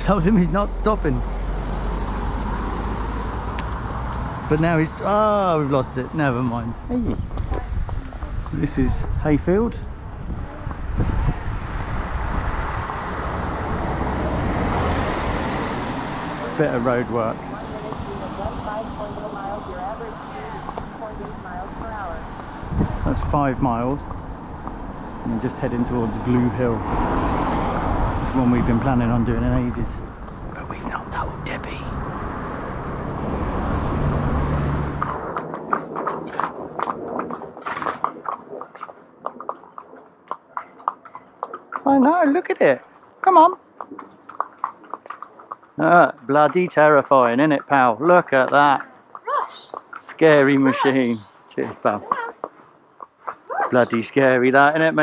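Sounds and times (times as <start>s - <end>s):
vehicle passing on road: 0.0s - 55.0s.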